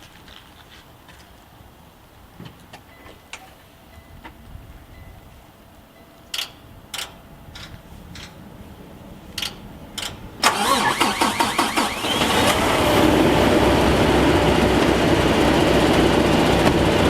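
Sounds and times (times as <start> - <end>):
truck engine idling: 9.2 - 17.0
starter cranking: 10.0 - 12.8.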